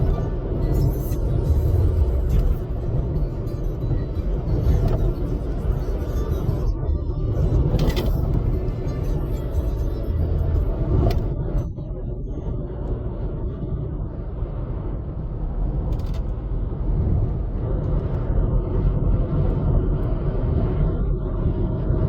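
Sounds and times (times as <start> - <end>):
car road rumble: 0.0 - 22.0.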